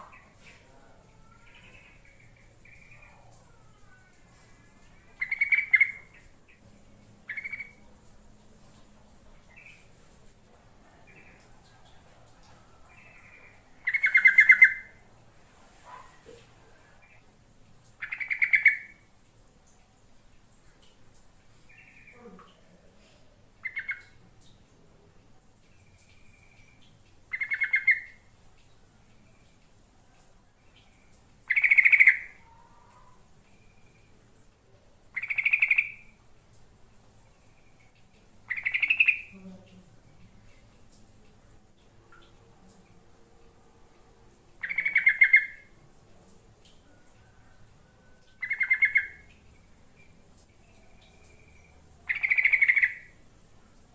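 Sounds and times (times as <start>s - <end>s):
bird bubbly chattering call: 5.2s - 6.6s, 7.3s - 7.8s, 13.8s - 15.0s, 18.0s - 19.0s, 23.6s - 24.2s, 27.3s - 28.2s, 31.5s - 32.6s, 35.2s - 36.2s, 38.5s - 39.3s, 44.6s - 45.7s, 48.4s - 49.3s, 52.1s - 53.2s
bird chattering calls: 13.9s - 14.9s, 38.5s - 39.3s, 52.1s - 53.1s.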